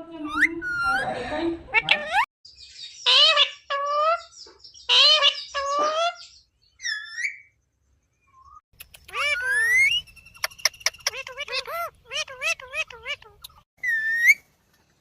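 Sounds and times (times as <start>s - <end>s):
parrot calling: 3.0s - 4.3s, 4.9s - 7.4s, 8.9s - 14.4s.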